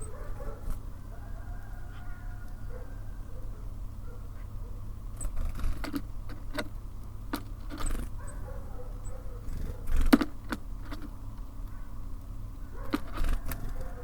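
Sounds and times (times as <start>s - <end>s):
beaks tapping on bird feeder: 7.3s - 8.1s.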